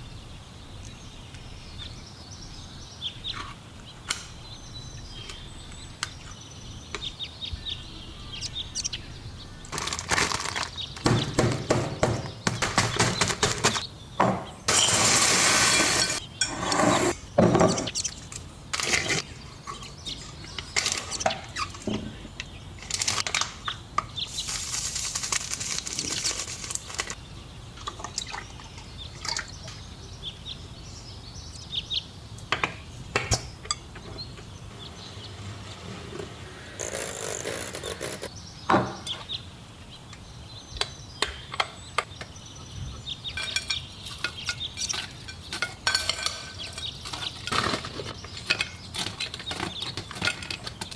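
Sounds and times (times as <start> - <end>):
utensils clinking in bowls: 14.7 - 17.1, 43.4 - 50.9.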